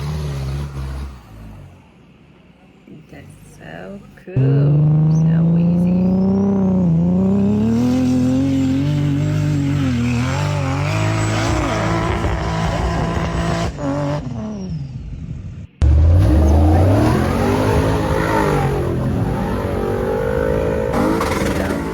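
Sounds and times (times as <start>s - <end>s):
off-road vehicle engine revving: 0.0s - 1.9s, 3.1s - 21.9s
louder engine revving hard: 4.4s - 14.4s, 15.8s - 21.9s.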